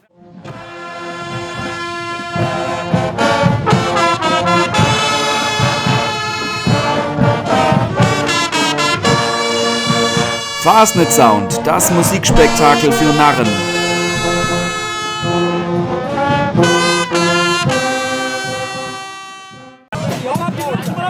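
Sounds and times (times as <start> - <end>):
carnival brass band playing: 0.7 - 15.5
drum beats: 10.6 - 14.9.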